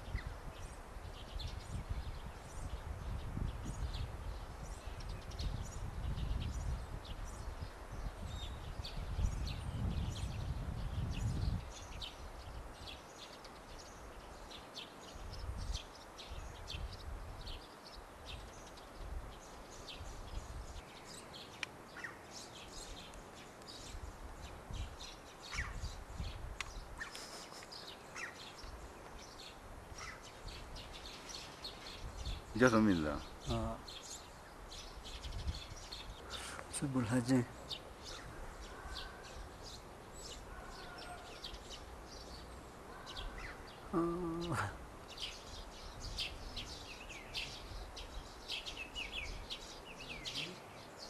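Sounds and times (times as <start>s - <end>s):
wind buffeting microphone: 0.0s - 13.0s, 15.1s - 17.6s, 18.3s - 21.0s, 23.8s - 27.1s, 28.6s - 33.8s, 34.5s - 36.3s, 44.8s - 50.0s
small birds chirping: 0.0s - 51.0s.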